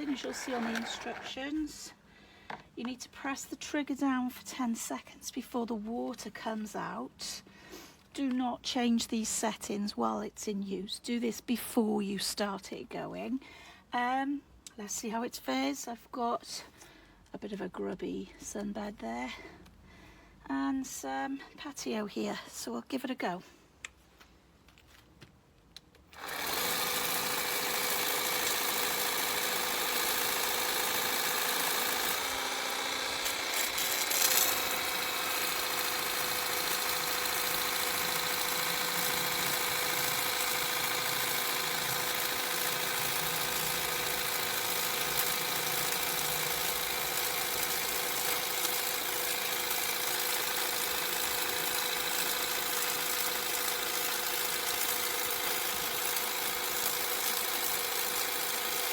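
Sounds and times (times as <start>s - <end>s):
pressure washer pump motor whining: 0.0s - 1.4s, 26.2s - 58.9s.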